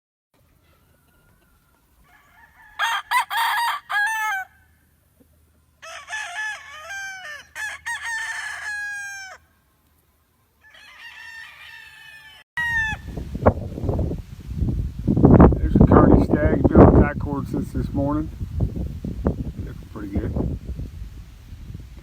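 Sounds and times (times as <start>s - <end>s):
roosters crowing: 0.4s - 5.0s, 5.6s - 9.8s, 10.5s - 13.4s.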